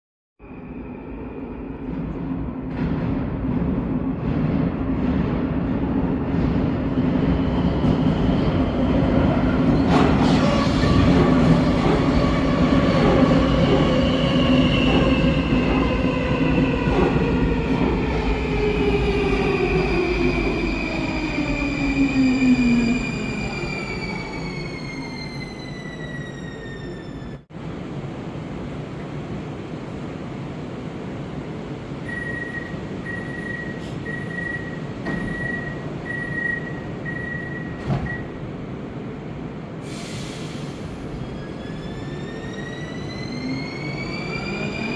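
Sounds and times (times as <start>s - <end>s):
train rumbling: 0.6s - 44.9s
wheels squealing on rails: 20.4s - 27.4s, 39.9s - 44.9s
high warning beeps: 32.1s - 38.3s
train doors knocking shut: 37.7s - 38.3s.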